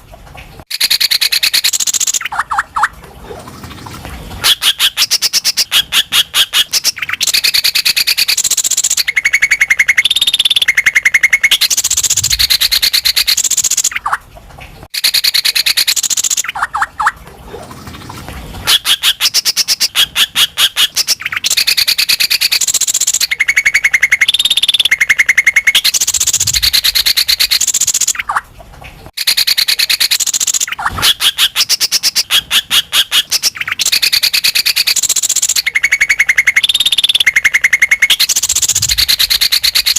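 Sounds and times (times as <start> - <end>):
bird singing trills and whistles: 0.7 - 3.5, 4.4 - 14.2, 14.9 - 17.2, 18.6 - 28.4, 29.2 - 39.9.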